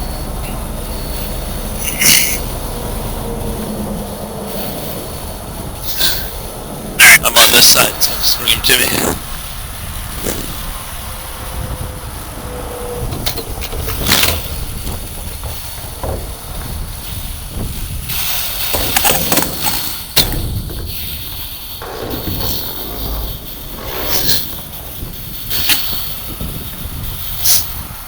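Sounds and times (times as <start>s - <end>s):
truck engine running: 0.0s - 28.0s
sharp knocks: 13.1s - 26.5s.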